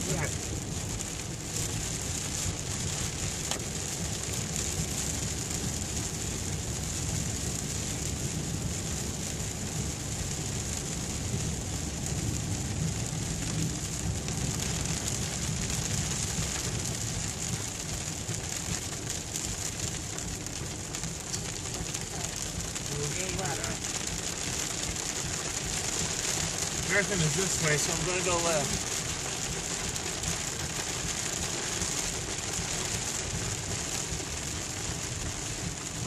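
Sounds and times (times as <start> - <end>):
car rumbling on road: 0.0 - 36.0
rain hitting car: 0.0 - 36.0.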